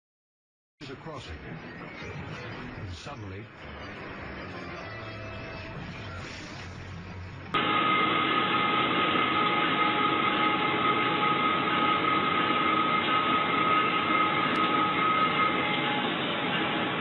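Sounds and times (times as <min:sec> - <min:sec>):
steady high tone: 0:07.6 - 0:17.0
train rail noise: 0:07.6 - 0:17.0.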